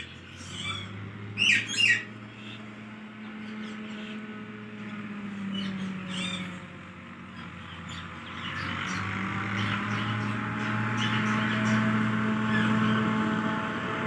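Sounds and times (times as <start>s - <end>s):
parrot chirping and squeaking: 0.0s - 2.6s, 5.6s - 6.6s, 11.0s - 11.8s, 12.5s - 13.0s.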